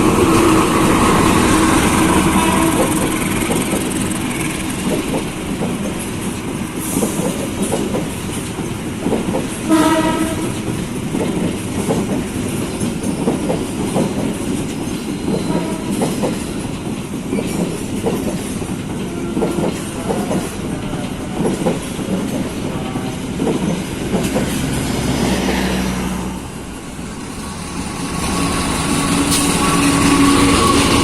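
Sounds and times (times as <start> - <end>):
train wheels clacking: 0.0 - 31.0
train horn blast: 1.2 - 3.2, 9.7 - 10.7, 15.4 - 16.1, 28.4 - 31.0.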